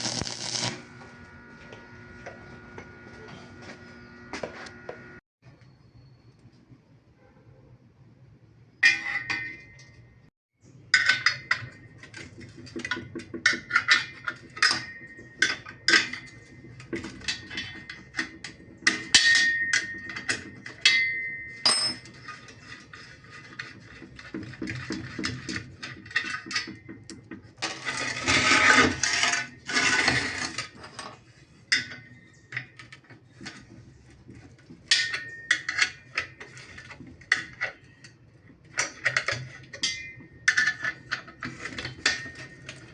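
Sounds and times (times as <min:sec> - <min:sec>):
rough metal scraping: 0:00.0 - 0:04.8, 0:27.6 - 0:32.3
metal knocks and clinks: 0:11.0 - 0:22.9.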